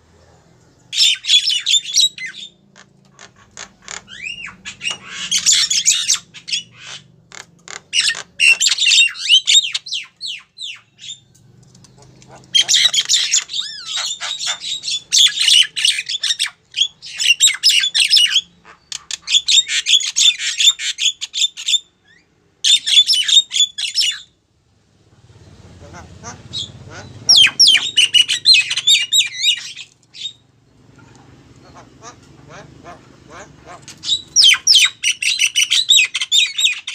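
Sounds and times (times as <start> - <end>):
myna squawking and whistling: 26.5 - 30.4, 31.6 - 36.9.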